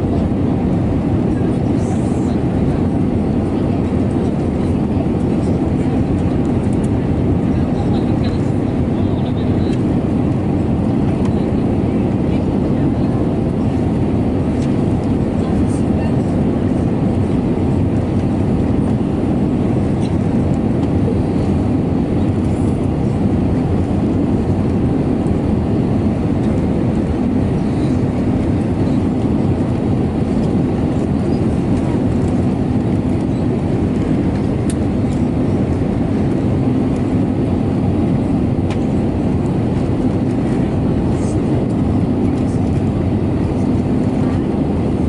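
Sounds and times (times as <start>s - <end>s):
airplane cabin engine drone: 0.0s - 45.0s.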